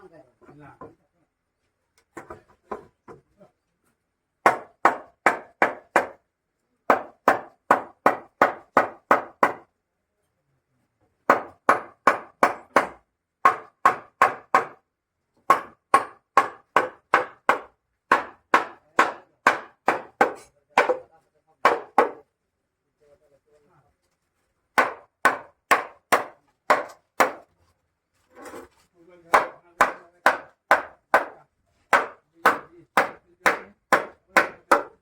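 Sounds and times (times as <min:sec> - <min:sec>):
hammer striking wood: 0:02.2 - 0:02.9, 0:04.4 - 0:06.2, 0:06.9 - 0:09.7, 0:11.2 - 0:14.8, 0:15.4 - 0:22.3, 0:24.7 - 0:27.5, 0:29.3 - 0:35.0.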